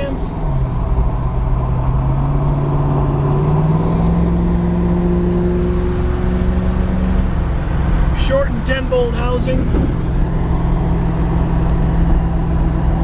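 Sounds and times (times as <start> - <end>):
car engine droning: 0.0 - 13.0.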